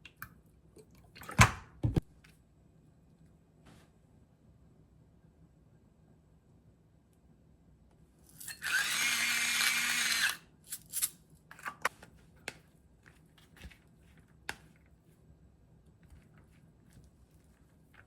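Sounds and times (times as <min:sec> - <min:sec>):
small motor running: 0:08.6 - 0:10.4.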